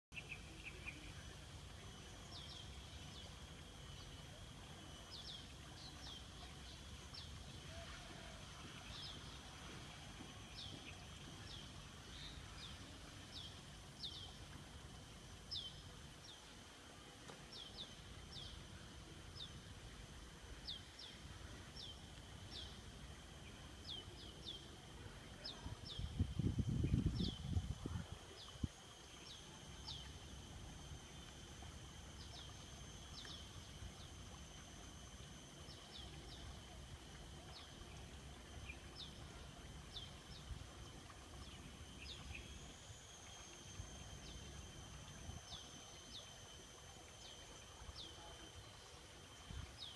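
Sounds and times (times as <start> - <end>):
steady high drone: 0.2 - 49.9.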